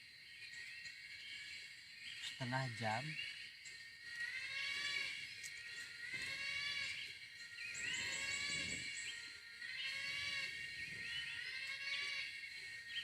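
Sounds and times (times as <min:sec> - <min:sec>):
high wavering animal call: 0:04.0 - 0:13.0.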